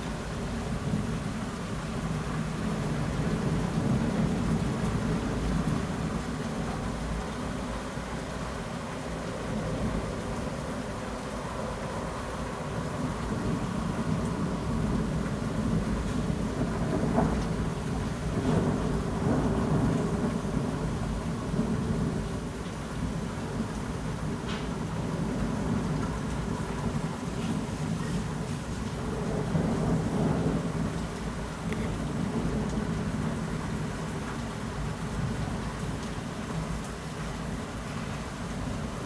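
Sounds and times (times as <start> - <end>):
heavy rain falling: 12.0 - 39.0
low rolling thunder: 13.4 - 27.1, 29.0 - 34.1.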